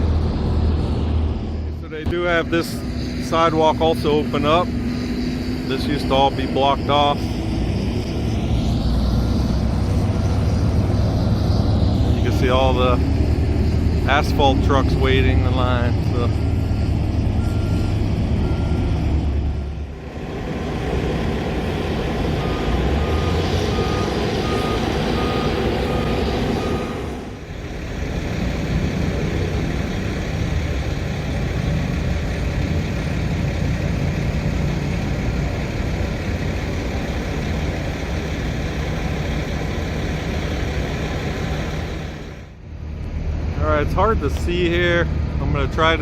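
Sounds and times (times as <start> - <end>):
diesel truck engines droning: 0.0 - 46.0
reversing alarm beeping: 17.4 - 27.5.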